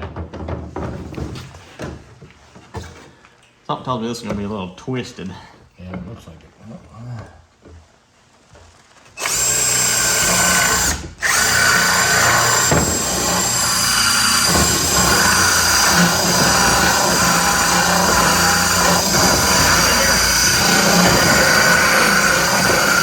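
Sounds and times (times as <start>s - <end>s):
power tool whining: 9.2s - 23.0s.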